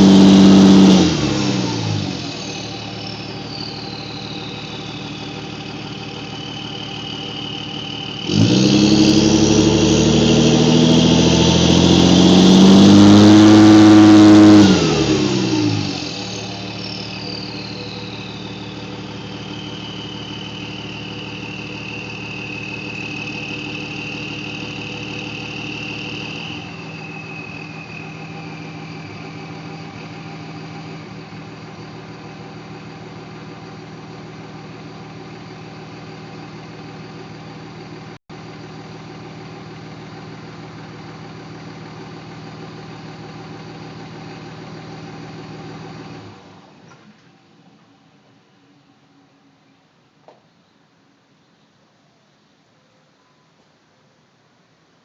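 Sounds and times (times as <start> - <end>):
turbo whistle: 0.0 - 10.8, 11.6 - 32.5
diesel engine revving: 0.0 - 46.8.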